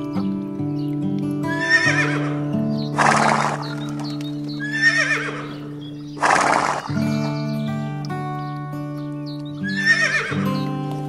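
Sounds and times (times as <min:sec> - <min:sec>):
background music: 0:00.0 - 0:11.0
horse whinnying: 0:01.5 - 0:04.0, 0:04.6 - 0:07.0, 0:09.6 - 0:10.4.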